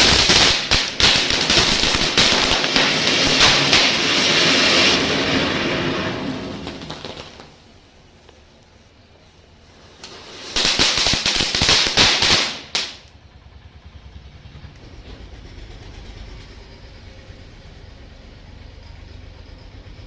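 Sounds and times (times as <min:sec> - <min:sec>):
firecracker crackling and fizzing: 0:00.0 - 0:13.2
low steady rumble: 0:13.0 - 0:20.0.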